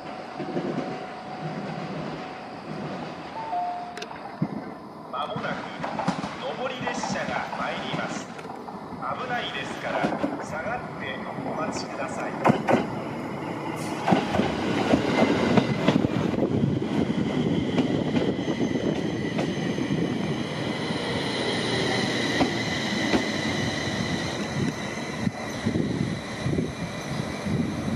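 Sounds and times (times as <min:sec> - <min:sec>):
high train whine: 0:00.0 - 0:27.9.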